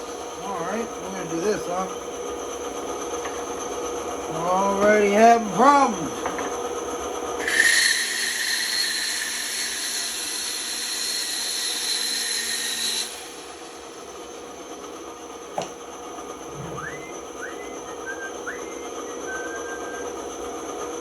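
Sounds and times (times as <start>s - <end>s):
band saw cutting wood: 7.4s - 14.0s
motor hum: 13.0s - 20.4s.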